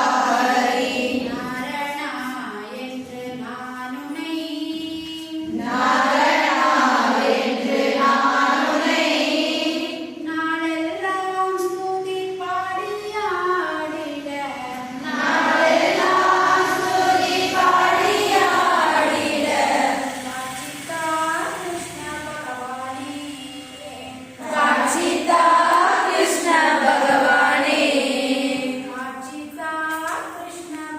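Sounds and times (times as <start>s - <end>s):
group of voices singing: 0.0s - 1.9s, 5.4s - 10.4s, 13.1s - 30.0s.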